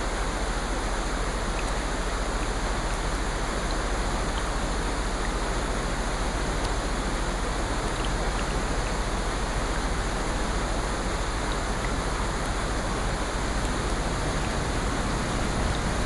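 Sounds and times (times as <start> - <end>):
faint drip ticks: 0.0 - 16.0
steady rain: 0.0 - 16.0.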